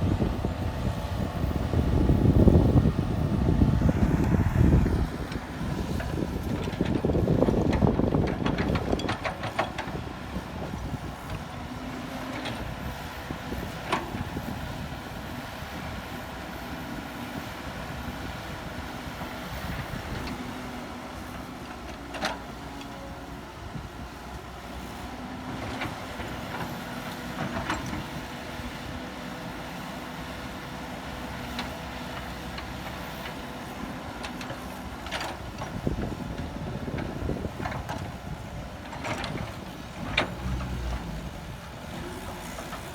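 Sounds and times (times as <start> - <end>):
diesel engine running: 0.0 - 29.7.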